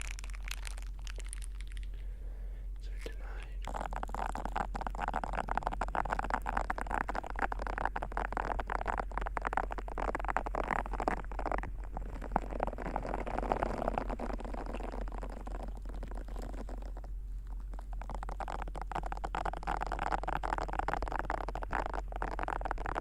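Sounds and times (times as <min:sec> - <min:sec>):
low hum: 0:00.0 - 0:23.0
ear pick scraping: 0:00.6 - 0:23.0.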